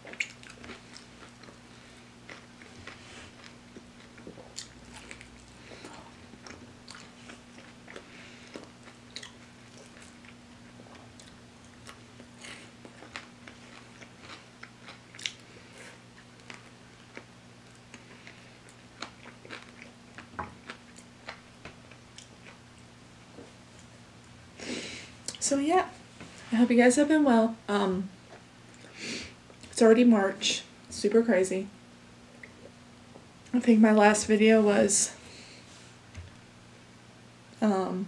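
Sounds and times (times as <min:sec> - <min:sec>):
crunchy bites and chewing: 0:00.0 - 0:22.9
low steady hum: 0:00.0 - 0:38.0.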